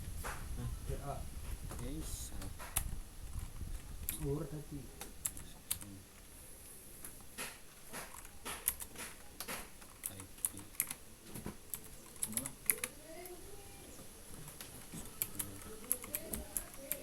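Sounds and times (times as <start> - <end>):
computer keyboard typing: 2.4 - 4.4, 5.0 - 5.9, 7.4 - 11.0, 11.7 - 13.4, 14.5 - 17.0.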